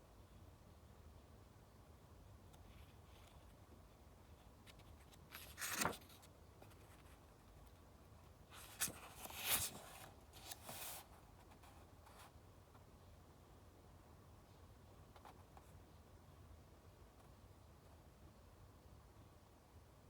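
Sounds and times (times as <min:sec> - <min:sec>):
book pages rustling: 0:04.7 - 0:07.1, 0:08.6 - 0:11.6.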